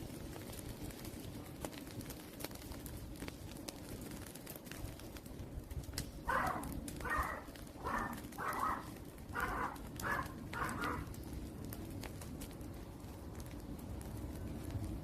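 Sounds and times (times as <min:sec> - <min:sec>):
wood fire crackling: 0:00.0 - 0:15.0
bird calling: 0:06.3 - 0:11.1.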